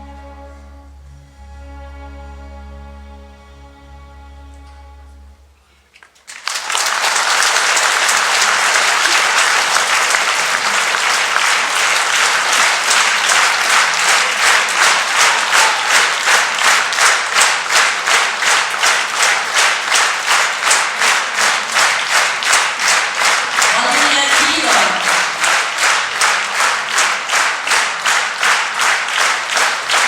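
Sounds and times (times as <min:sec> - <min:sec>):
audience applauding: 0:05.9 - 0:30.0
rhythmic clapping in unison: 0:06.0 - 0:30.0.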